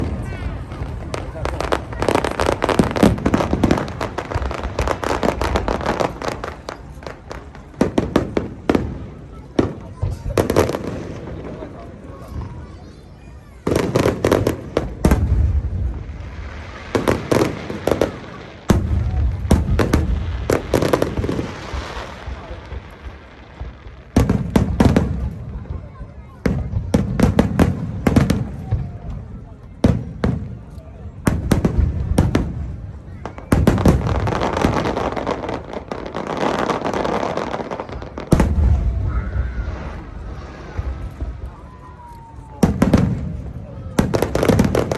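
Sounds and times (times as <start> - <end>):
fireworks bangs: 0.0 - 44.9
loud firework bang: 37.9 - 41.7.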